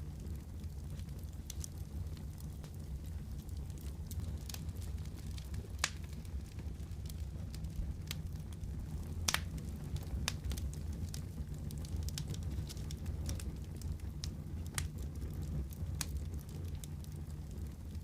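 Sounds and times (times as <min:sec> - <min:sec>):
low rumble of flames: 0:00.0 - 0:18.0
wood fire crackling: 0:00.0 - 0:18.0.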